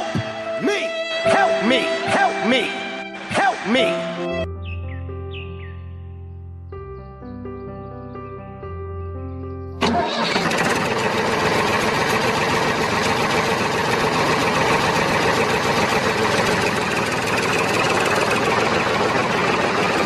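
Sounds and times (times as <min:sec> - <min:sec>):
music: 0:00.0 - 0:10.2
vehicle engine running: 0:09.8 - 0:20.0.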